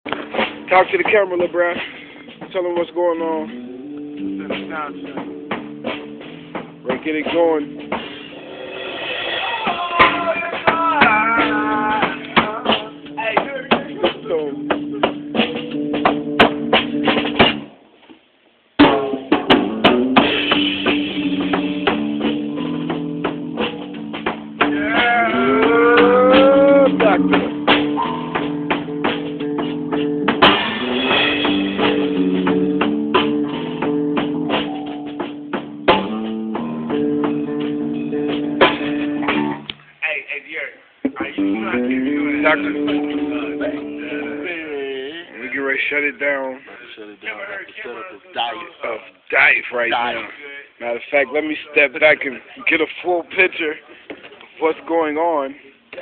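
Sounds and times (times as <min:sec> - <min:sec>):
snare and bass drum hits: 0:00.1 - 0:02.6, 0:04.4 - 0:17.7, 0:18.8 - 0:39.7
live band playing: 0:00.1 - 0:17.8, 0:18.8 - 0:40.0, 0:41.1 - 0:46.8.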